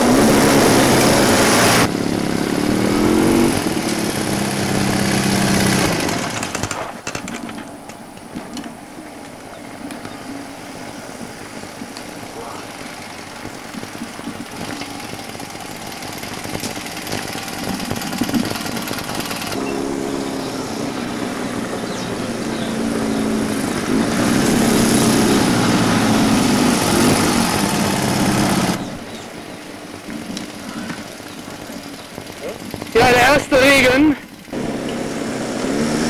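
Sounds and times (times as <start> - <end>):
motorcycle engine running: 0.0 - 6.8, 10.0 - 36.0
road and wind noise: 0.0 - 36.0.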